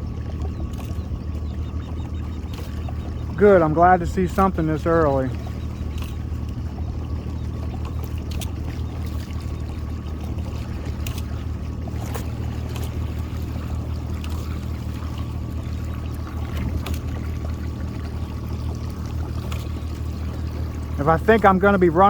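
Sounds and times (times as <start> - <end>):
boat engine running: 0.0 - 22.0
light clicks and splashes: 0.0 - 22.0.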